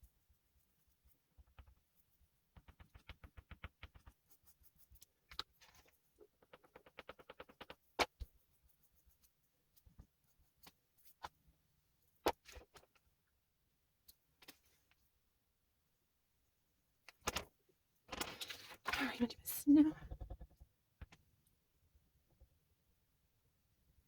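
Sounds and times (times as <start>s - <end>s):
oil pastel rubbing on paper: 0.3s - 11.3s.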